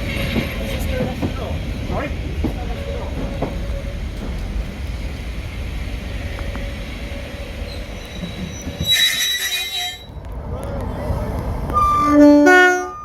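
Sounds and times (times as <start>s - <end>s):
diesel train rumbling: 0.0s - 13.0s
high-pitched wheel squeal: 7.6s - 10.1s, 11.7s - 13.0s.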